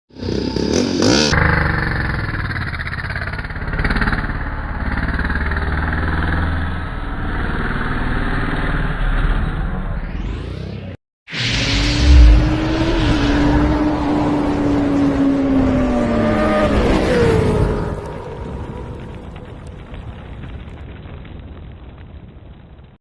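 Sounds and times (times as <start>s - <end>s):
motorcycle engine running: 0.1s - 9.7s
rising sweep: 9.8s - 16.8s.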